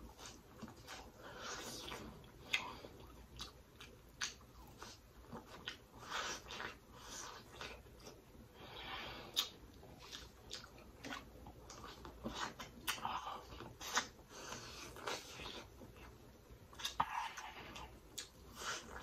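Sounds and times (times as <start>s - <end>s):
chewing corn on the cob: 0.0s - 8.3s, 9.3s - 19.0s
wet mouth sounds: 9.3s - 15.7s.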